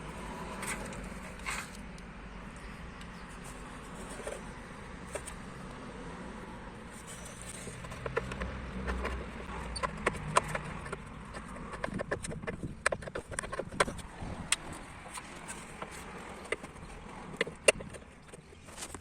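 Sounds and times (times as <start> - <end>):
tools clicking and tapping: 7.4 - 18.5.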